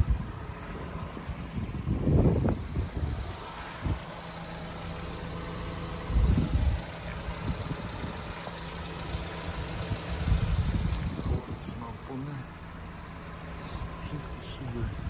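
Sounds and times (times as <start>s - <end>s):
wind buffeting microphone: 0.0s - 4.2s, 6.0s - 8.4s, 9.6s - 11.6s
car engine idling: 0.0s - 15.0s.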